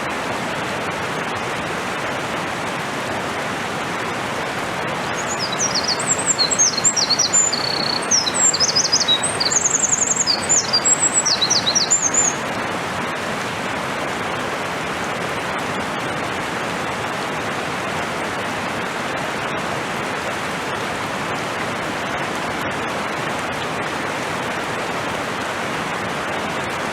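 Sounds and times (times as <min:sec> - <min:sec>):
mountain stream rushing: 0:00.0 - 0:26.9
wren singing trills: 0:05.1 - 0:12.4.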